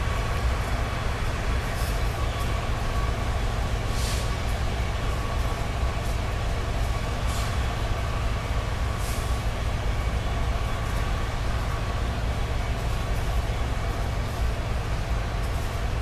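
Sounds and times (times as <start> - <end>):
distant train rumbling: 0.0 - 16.0
brief hisses: 3.9 - 4.4.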